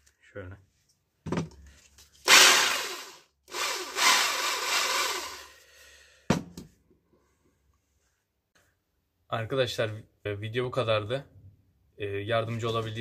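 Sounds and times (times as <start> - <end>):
drill motor spinning: 2.2 - 5.5.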